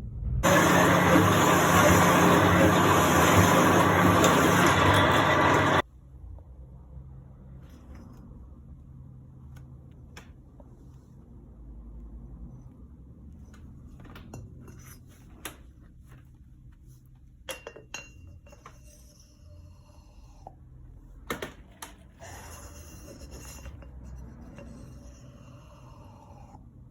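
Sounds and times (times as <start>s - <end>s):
metal scraping: 0.4s - 5.8s
metal tools clinking and knocking: 17.5s - 18.7s.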